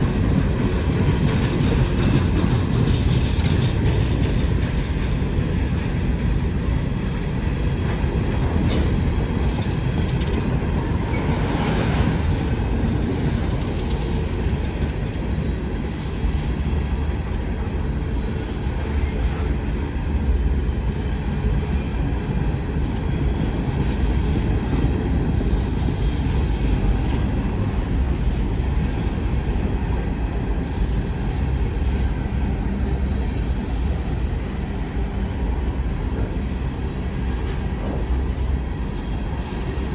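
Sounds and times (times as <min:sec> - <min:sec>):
train wheels on rails: 0:00.0 - 0:39.9.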